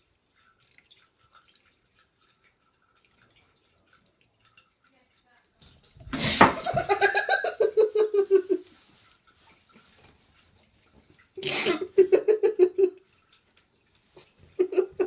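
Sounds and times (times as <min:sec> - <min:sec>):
person laughing: 0:06.2 - 0:08.6, 0:11.4 - 0:13.0, 0:14.6 - 0:15.0.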